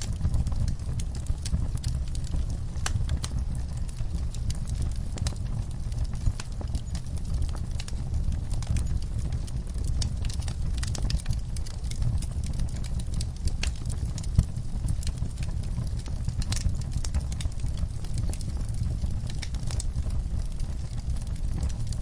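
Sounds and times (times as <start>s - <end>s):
low rumble of flames: 0.0s - 22.0s
wood fire crackling and popping: 0.0s - 22.0s.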